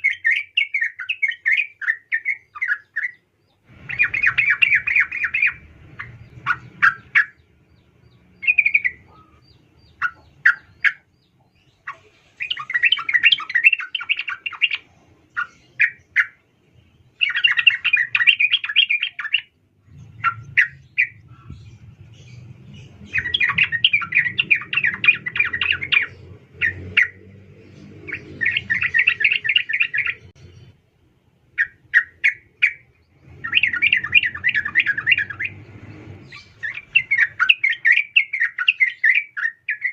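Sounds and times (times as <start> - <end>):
bird chattering call: 8.4 - 14.8.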